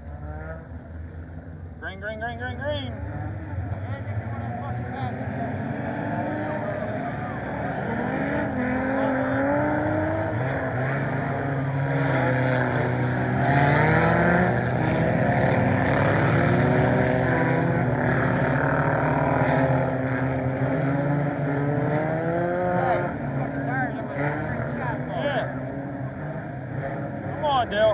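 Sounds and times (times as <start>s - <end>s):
race car engines: 0.0s - 27.9s.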